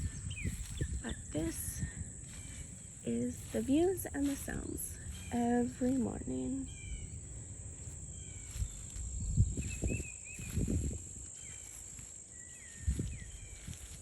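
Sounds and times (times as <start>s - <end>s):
insects buzzing: 0.0s - 14.0s
low rumbles on microphone: 0.0s - 14.0s
bird chirps: 6.6s - 7.2s.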